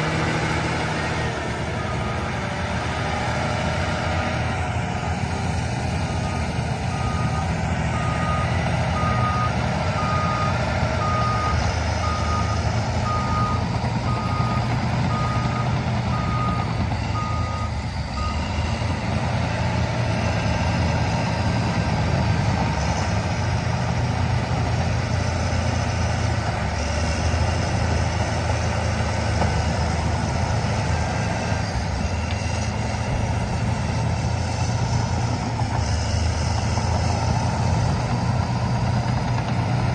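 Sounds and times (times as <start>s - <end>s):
diesel engine running: 0.0s - 39.9s
reversing alarm beeping: 0.4s - 18.8s.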